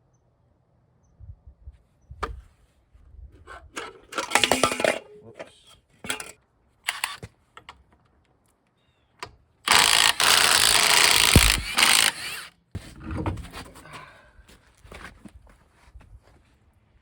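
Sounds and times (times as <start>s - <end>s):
power tool running: 9.7s - 12.5s.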